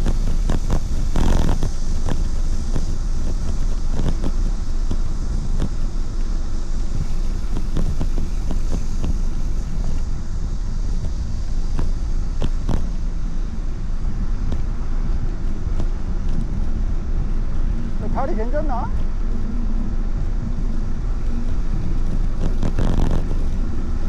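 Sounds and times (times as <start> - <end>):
bicycle clicks and rattles: 0.0 - 10.1, 21.2 - 24.0
wind and road rumble: 0.0 - 24.0.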